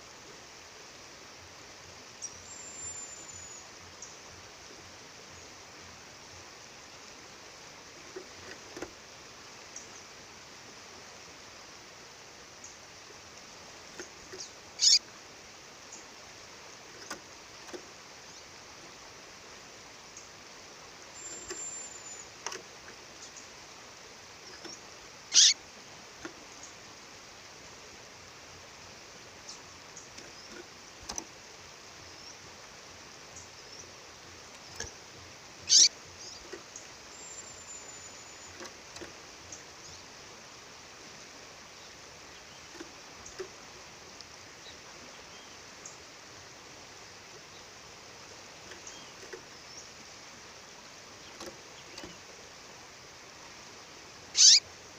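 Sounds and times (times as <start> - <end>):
bird chirping: 2.2 - 4.2, 14.2 - 15.0, 21.1 - 22.4, 24.4 - 25.6, 35.6 - 40.1, 54.4 - 54.6.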